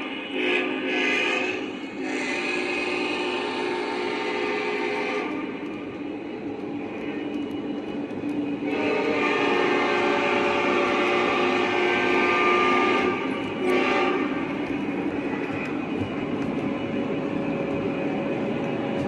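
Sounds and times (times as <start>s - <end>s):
locomotive horn blowing: 0.0s - 5.5s, 8.6s - 14.5s
train running: 0.0s - 19.0s.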